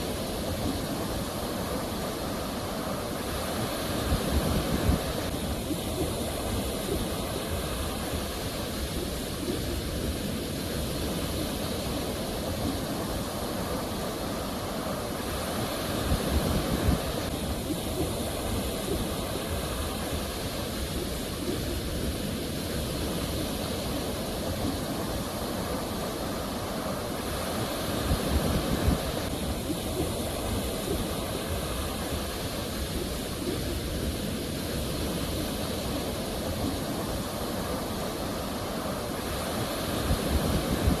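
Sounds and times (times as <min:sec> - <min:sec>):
sea waves surf rushing: 0:00.0 - 0:41.0.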